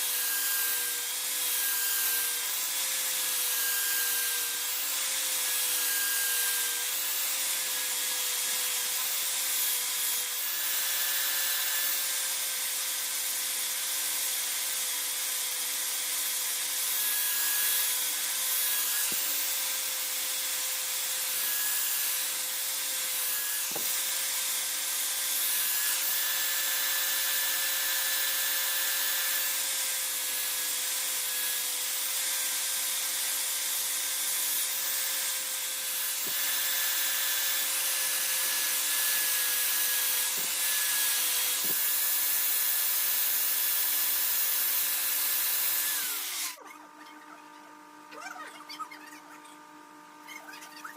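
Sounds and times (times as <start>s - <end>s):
electric power tool motor hum: 0.0s - 48.2s.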